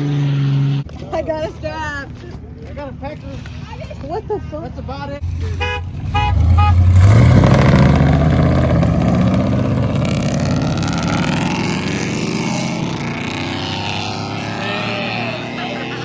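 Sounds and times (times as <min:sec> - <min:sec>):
truck engine accelerating: 0:00.0 - 0:01.0, 0:05.2 - 0:16.0
horn toot: 0:05.3 - 0:09.7.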